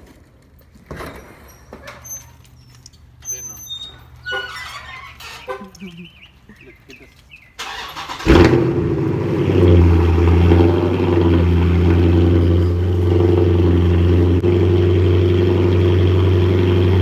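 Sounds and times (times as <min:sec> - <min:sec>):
car engine starting and idling: 0:07.6 - 0:17.0.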